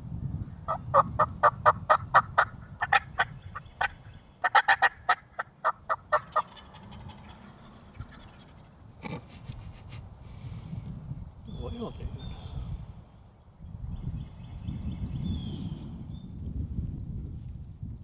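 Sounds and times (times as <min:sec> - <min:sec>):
turkey yelps: 0:00.7 - 0:08.7.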